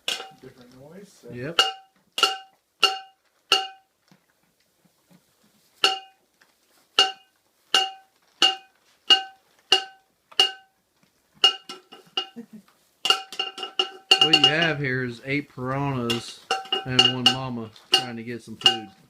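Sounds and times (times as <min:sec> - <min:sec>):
metal pan banging clangs: 0:00.0 - 0:00.4, 0:01.5 - 0:03.9, 0:05.8 - 0:06.2, 0:07.0 - 0:10.7, 0:11.4 - 0:12.4, 0:13.0 - 0:14.8, 0:16.0 - 0:19.0.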